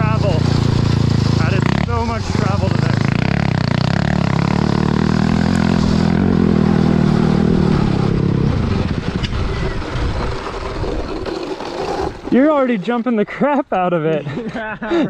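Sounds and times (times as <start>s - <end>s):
dirt bike engine running hard: 0.0s - 12.4s.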